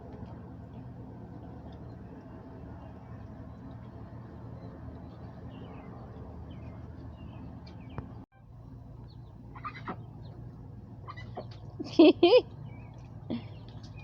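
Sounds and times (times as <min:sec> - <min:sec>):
steady low hum: 0:00.0 - 0:14.0
loud bird call: 0:09.5 - 0:10.1.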